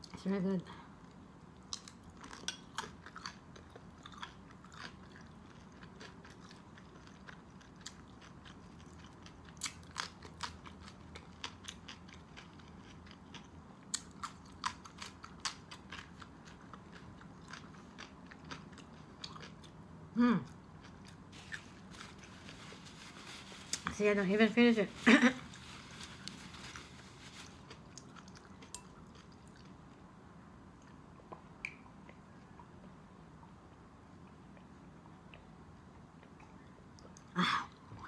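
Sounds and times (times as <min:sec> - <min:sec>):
person chewing crunchy food: 0:01.5 - 0:23.8, 0:25.4 - 0:30.0.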